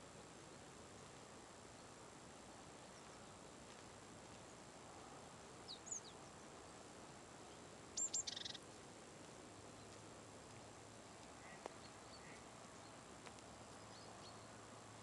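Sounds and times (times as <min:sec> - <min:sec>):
faint steady hiss: 0:00.0 - 0:15.0
bird whistled notes and trill: 0:08.0 - 0:08.6
high bird chirps: 0:08.0 - 0:08.6.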